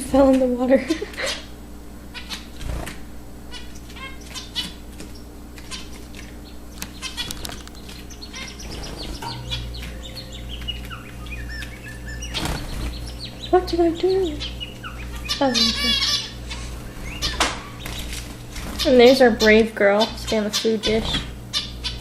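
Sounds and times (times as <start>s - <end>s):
wings fluttering: 2.5s - 3.1s, 3.9s - 19.6s
finches chirping: 3.5s - 22.0s.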